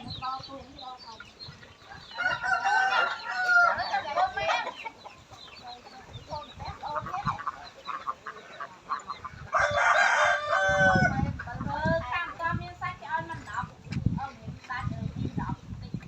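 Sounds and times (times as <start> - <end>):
chickens clucking: 0.0 - 16.0
rooster crowing: 2.1 - 4.0, 9.5 - 11.2.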